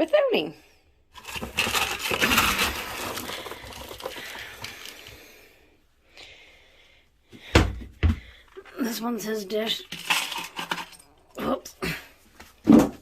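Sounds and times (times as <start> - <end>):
cat food crackling and clattering: 1.2 - 5.5, 9.7 - 11.3.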